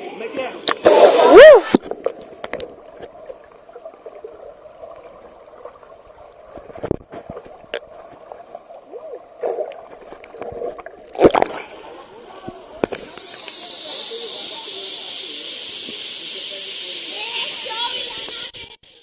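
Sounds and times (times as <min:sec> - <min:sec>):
muffled underwater water rush: 0:00.4 - 0:19.0
water splash: 0:00.6 - 0:03.4, 0:06.4 - 0:18.5
gurgling bubbles: 0:00.6 - 0:15.0
underwater clicks: 0:01.7 - 0:03.2, 0:09.4 - 0:11.6.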